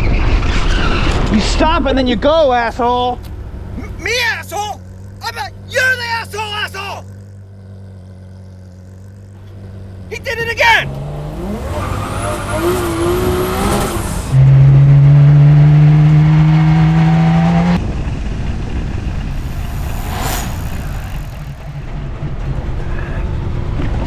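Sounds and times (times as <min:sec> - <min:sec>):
street and road noise: 0:00.0 - 0:24.0
car engine revving hard: 0:03.7 - 0:17.8, 0:19.3 - 0:21.8.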